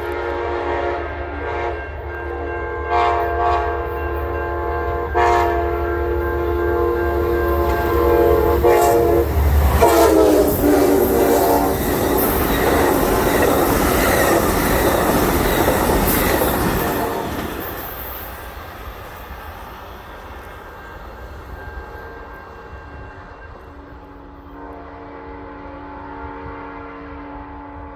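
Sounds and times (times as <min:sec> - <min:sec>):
train horn: 0:00.0 - 0:18.0, 0:20.8 - 0:27.9
train wheels clattering on rails: 0:07.0 - 0:24.2.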